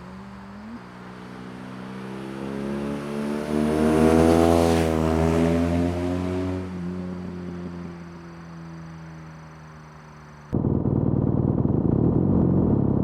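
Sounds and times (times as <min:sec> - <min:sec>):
motorcycle exhaust: 0:10.6 - 0:13.0.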